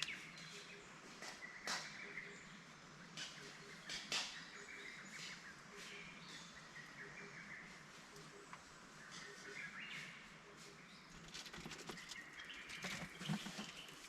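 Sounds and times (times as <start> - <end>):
faint chirping calls: 0.0 - 14.0.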